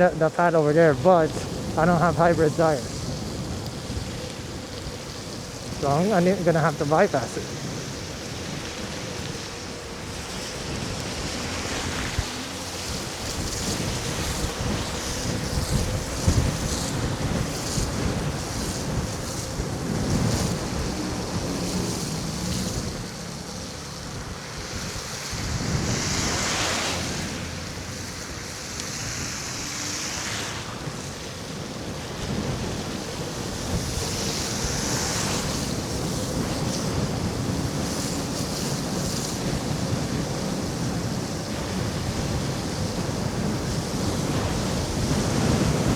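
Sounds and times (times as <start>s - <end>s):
tyres hissing on wet road: 0.0s - 45.9s
wind buffeting microphone: 0.0s - 45.9s.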